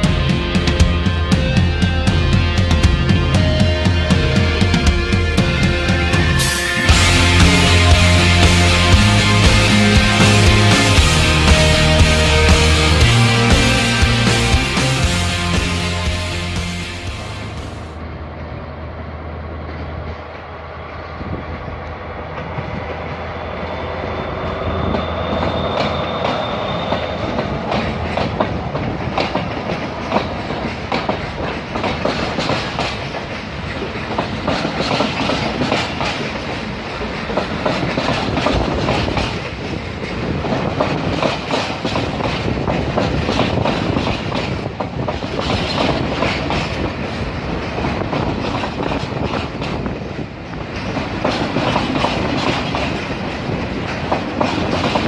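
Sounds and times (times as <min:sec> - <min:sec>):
train wheels clattering over rail joints: 0:25.0 - 0:55.0.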